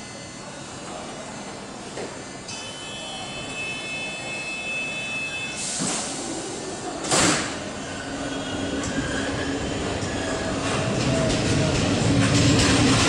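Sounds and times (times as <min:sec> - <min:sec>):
train hum moving off: 0:00.4 - 0:13.0.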